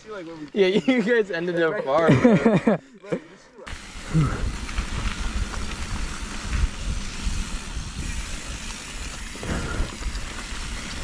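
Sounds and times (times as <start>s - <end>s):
bike rolling on dirt trail: 0.0s - 2.4s, 3.7s - 11.0s
wind rushing over microphone: 3.8s - 11.0s.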